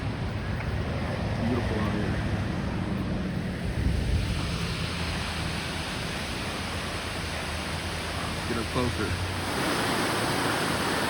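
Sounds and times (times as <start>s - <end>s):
wind buffeting microphone: 0.0s - 11.0s
waterfall rushing: 3.5s - 11.0s.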